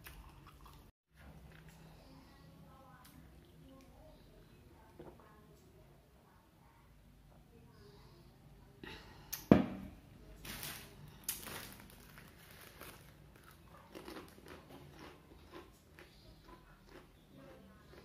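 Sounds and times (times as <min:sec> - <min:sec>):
crunchy crackers being chewed: 0:10.5 - 0:18.0.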